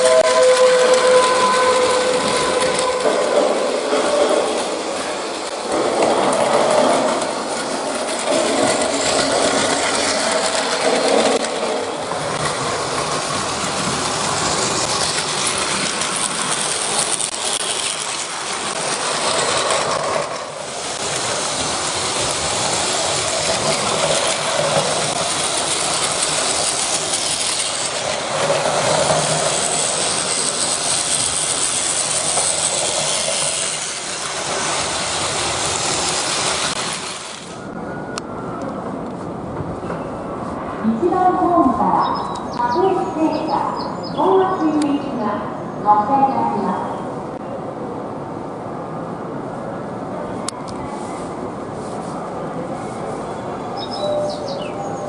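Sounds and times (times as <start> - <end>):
toy train motors whirring: 14.4 - 37.6.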